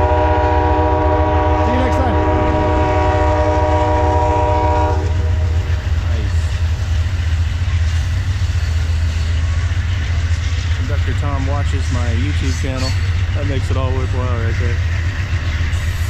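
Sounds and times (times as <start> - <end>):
locomotive air horn chord: 0.0 - 5.6
train rumbling: 0.0 - 16.0.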